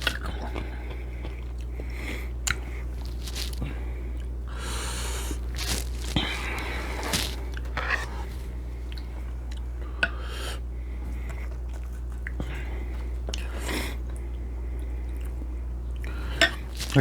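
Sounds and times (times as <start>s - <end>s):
steady low hum: 0.0s - 17.0s
person chewing with wet mouth clicks: 2.4s - 3.6s.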